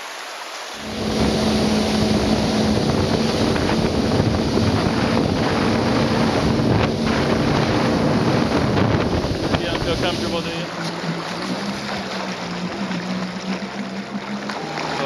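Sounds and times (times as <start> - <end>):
water washing: 0.0 - 15.0
jet ski engine humming: 0.6 - 15.0
wind on microphone: 0.8 - 14.2.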